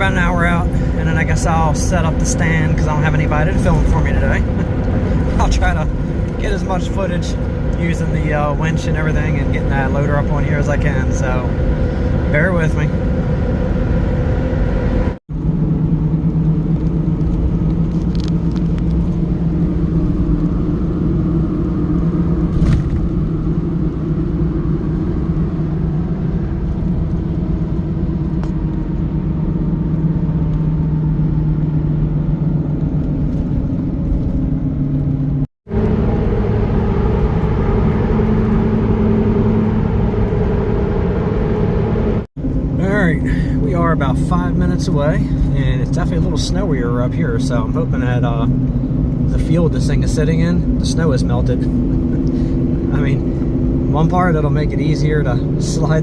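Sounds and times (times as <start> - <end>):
truck engine and road noise: 0.0 - 56.0.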